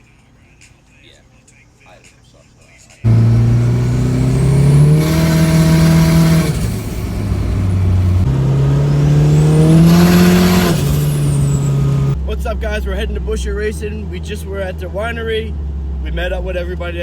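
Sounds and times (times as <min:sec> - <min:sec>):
car engine revving: 0:03.1 - 0:12.2.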